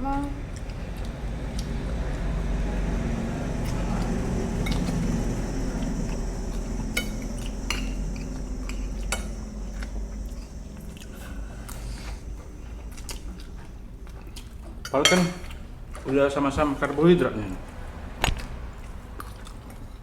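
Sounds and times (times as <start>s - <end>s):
steady low rumble: 0.0s - 20.0s
cutlery clinking against plates: 4.6s - 5.1s, 7.0s - 9.6s, 14.2s - 16.1s.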